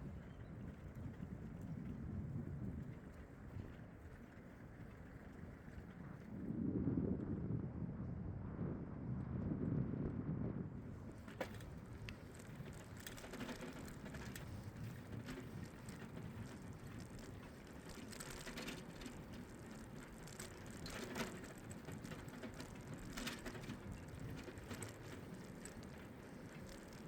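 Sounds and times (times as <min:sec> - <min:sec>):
tyres rolling on path: 0:00.0 - 0:06.3, 0:10.9 - 0:27.0
bicycle freewheel ticking: 0:11.4 - 0:27.0.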